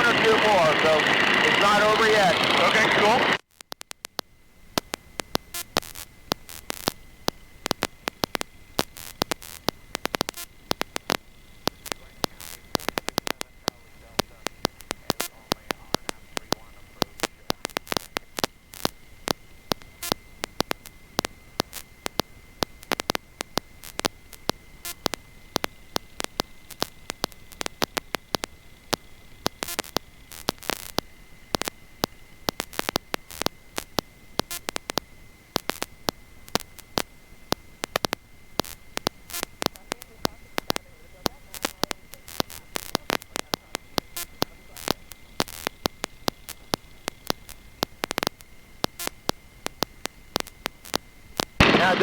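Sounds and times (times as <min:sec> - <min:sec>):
high-pitched whine: 0:00.0 - 0:03.4, 0:51.6 - 0:52.0
faint hiss: 0:00.0 - 0:52.0
static crackling clicks: 0:00.0 - 0:52.0.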